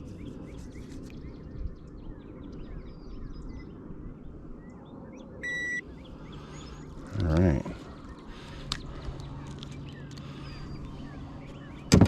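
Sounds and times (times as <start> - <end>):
songbirds chirping: 0.0 - 12.0
short high beep: 5.4 - 5.8.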